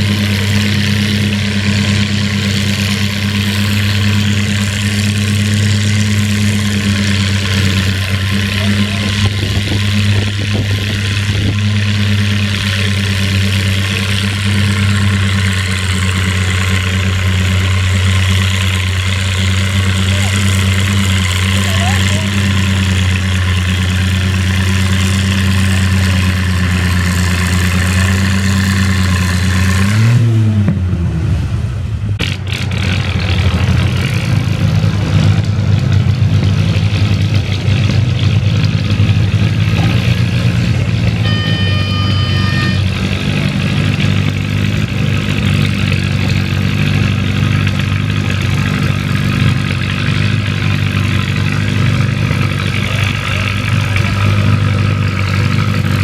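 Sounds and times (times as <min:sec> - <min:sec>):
tractor engine running: 0:00.0 - 0:56.0
short high-pitched tone: 0:41.2 - 0:43.2.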